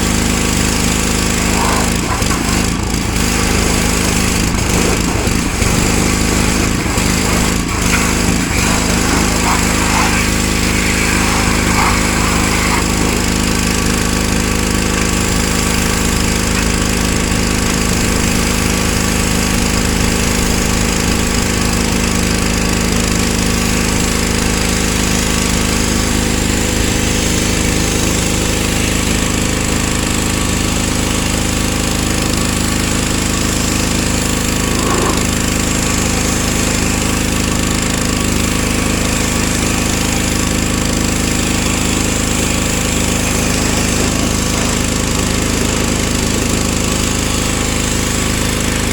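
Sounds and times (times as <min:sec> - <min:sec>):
hiss of water spray: 0:00.0 - 0:19.0, 0:33.8 - 0:48.6
pressure washer engine droning: 0:00.0 - 0:48.9.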